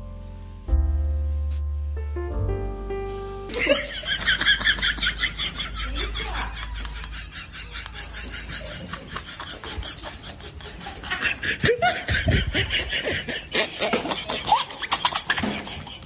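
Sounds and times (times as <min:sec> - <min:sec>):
people snickering laughter: 0:03.5 - 0:16.0.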